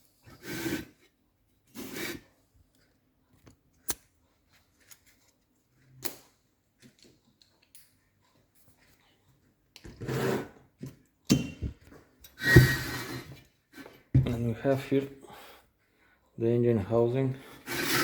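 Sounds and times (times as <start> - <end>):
faint clicks and scrapes: 2.4 - 11.2.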